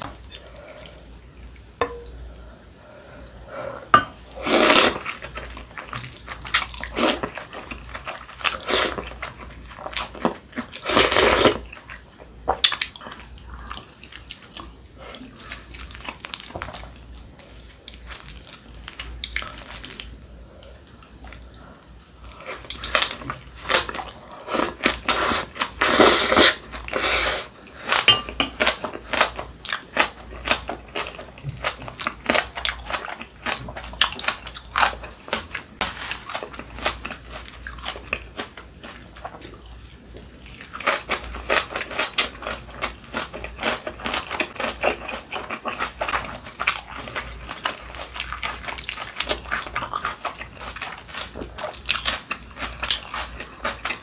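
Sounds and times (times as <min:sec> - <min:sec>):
crunchy food chewing: 0:27.7 - 0:54.0.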